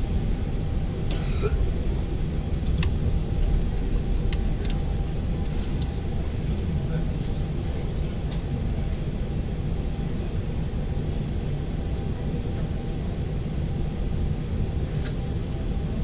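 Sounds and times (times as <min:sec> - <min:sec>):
train running low rumble: 0:00.0 - 0:16.0.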